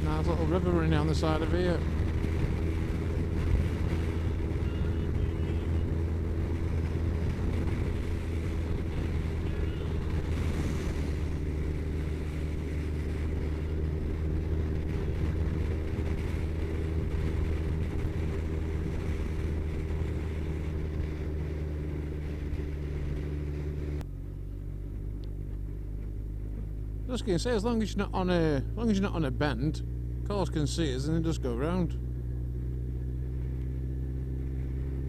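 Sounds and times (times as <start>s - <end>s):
wind rush: 0.0s - 24.0s
motorcycle engine running: 0.0s - 35.0s.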